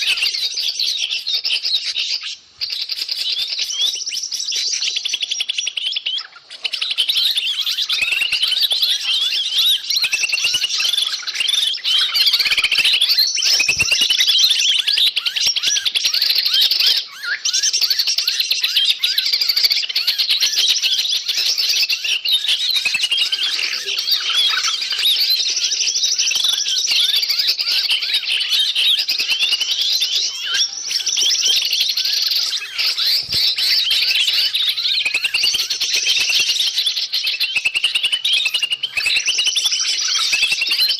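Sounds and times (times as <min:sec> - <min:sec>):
chorus of small birds chirping: 0:00.0 - 0:40.9.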